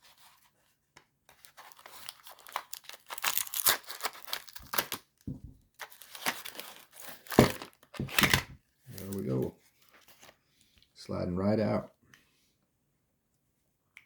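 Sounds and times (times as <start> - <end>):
wrapping crinkling and tearing: 1.3 - 10.4.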